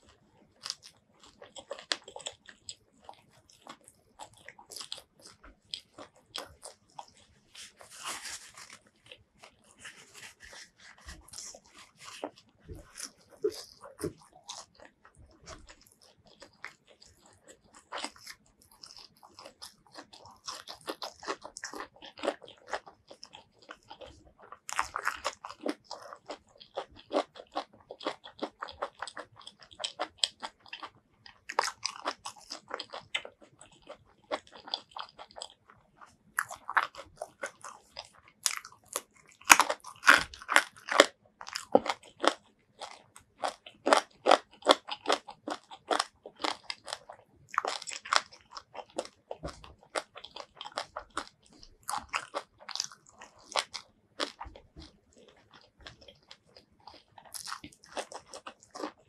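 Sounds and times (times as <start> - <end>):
crunchy food chewing: 0.0 - 59.0.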